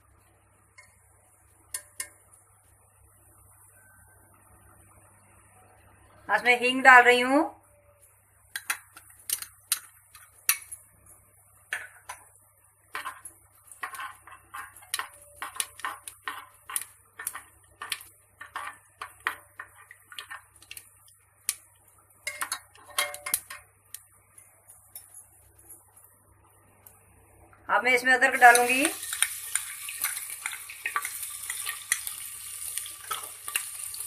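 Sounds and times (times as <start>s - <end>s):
metal spoon scraping a pot: 12.9s - 20.8s.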